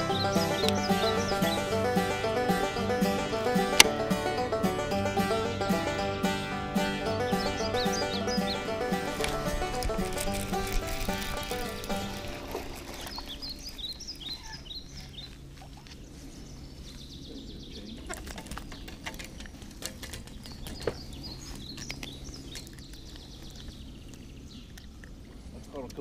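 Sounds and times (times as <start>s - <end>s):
small birds chirping: 0.0s - 5.2s, 7.0s - 26.0s.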